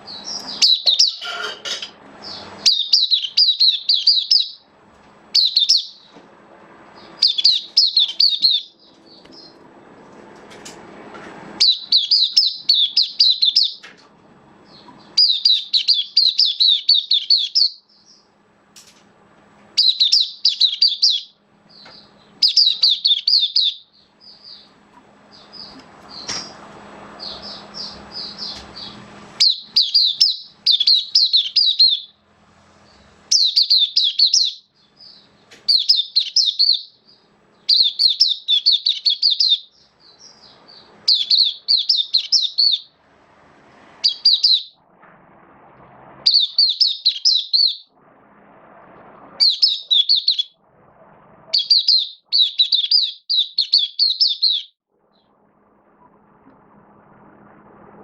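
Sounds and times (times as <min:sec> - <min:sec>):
bird warbling: 0:00.2 - 0:04.6, 0:07.0 - 0:09.6, 0:44.0 - 0:44.8, 0:46.2 - 0:48.0, 0:49.4 - 0:50.6, 0:51.5 - 0:55.3.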